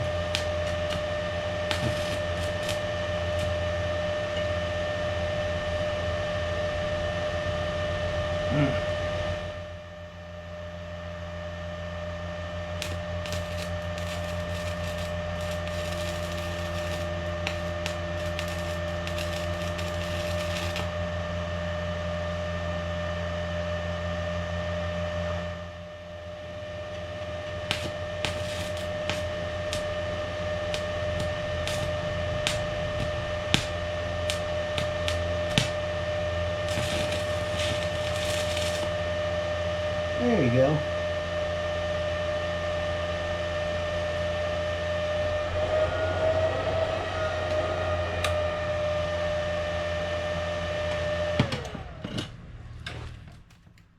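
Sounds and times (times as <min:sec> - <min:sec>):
welding arc crackling: 0:00.0 - 0:04.3, 0:12.6 - 0:21.1, 0:26.7 - 0:39.2
steady electrical hum: 0:00.0 - 0:51.4.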